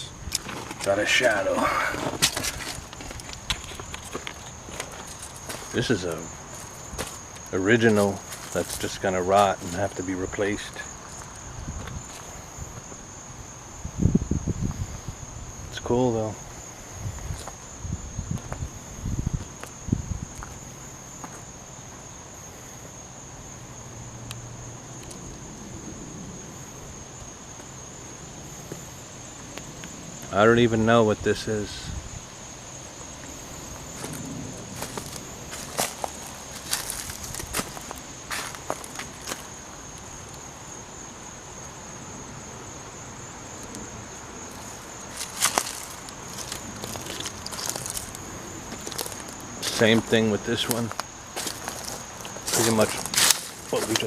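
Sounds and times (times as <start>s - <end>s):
footsteps: 0.0s - 13.0s, 33.2s - 39.5s, 44.5s - 54.0s
insects trilling: 0.0s - 54.0s.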